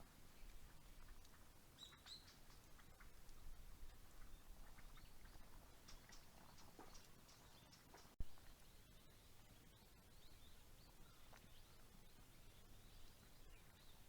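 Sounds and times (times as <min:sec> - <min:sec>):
faint ticks: 0:00.4 - 0:04.0, 0:04.8 - 0:08.2
faint bird chirps: 0:01.8 - 0:03.1.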